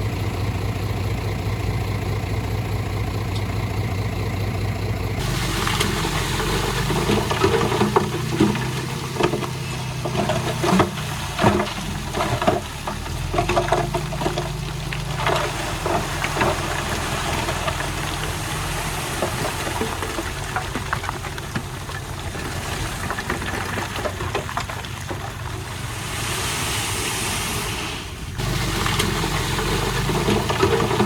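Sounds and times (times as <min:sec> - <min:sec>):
heavy diesel machinery running: 0:00.0 - 0:31.0
soil and stones clattering: 0:05.2 - 0:31.0.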